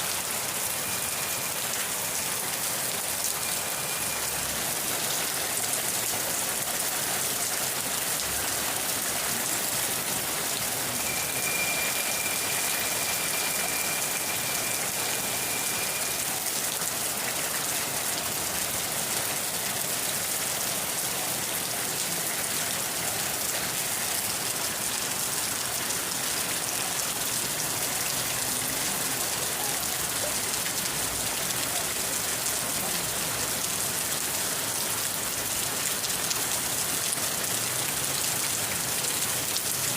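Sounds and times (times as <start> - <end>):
steady rain hiss: 0.0 - 39.9
thin high tone: 10.9 - 16.4.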